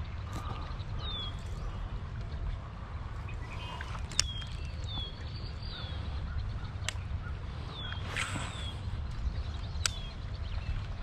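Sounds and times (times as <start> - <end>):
low outdoor rumble: 0.0 - 11.0
sharp clicks: 4.0 - 5.0, 9.1 - 10.2.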